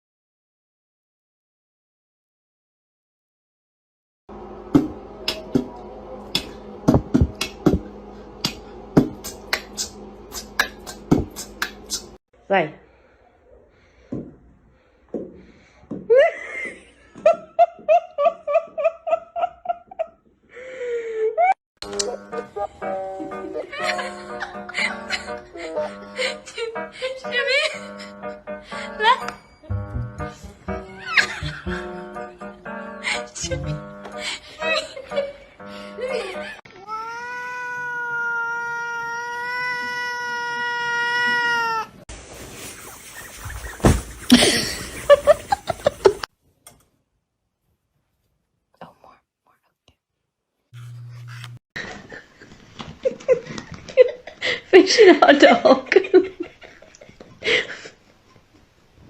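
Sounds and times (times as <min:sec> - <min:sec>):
cat yowling: 0:36.8 - 0:42.0.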